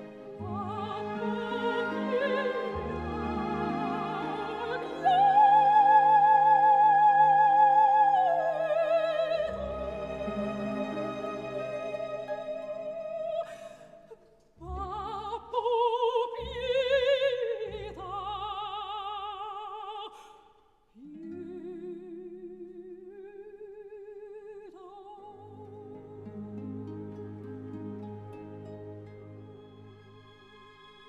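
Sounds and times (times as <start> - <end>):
operatic singing: 0.0 - 20.2.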